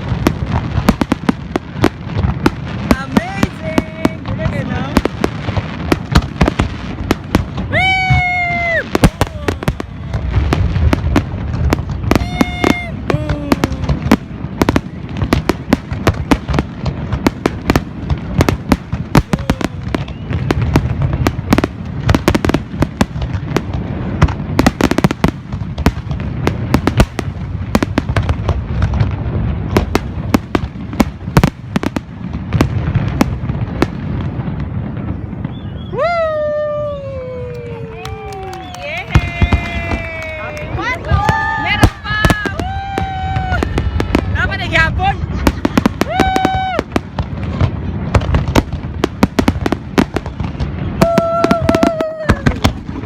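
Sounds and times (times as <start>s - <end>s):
fireworks bangs and crackles: 0.0s - 53.0s.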